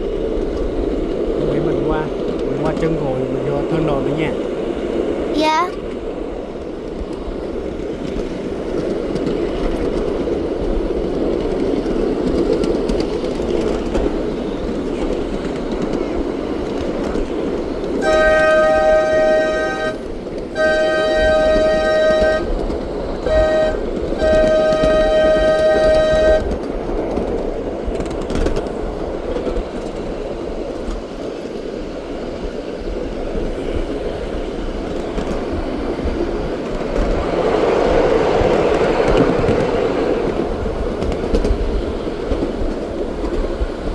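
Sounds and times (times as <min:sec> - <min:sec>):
train rumbling: 0:00.0 - 0:43.9
train horn blasts: 0:18.0 - 0:26.7.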